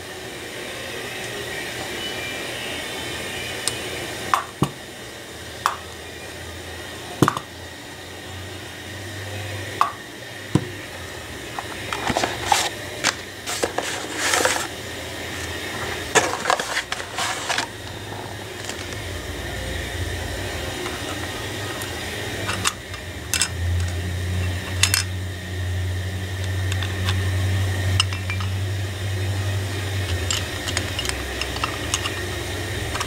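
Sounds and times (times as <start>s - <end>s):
steady background hum: 0.0s - 33.0s
rustling and scraping: 11.7s - 19.1s
small parts clicking and tapping: 22.4s - 25.1s, 26.4s - 27.2s, 30.0s - 32.3s.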